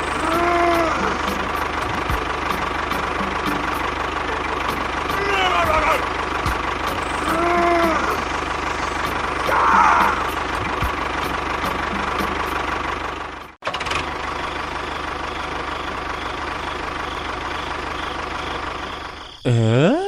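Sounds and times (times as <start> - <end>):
small engine knocking: 0.0 - 14.8.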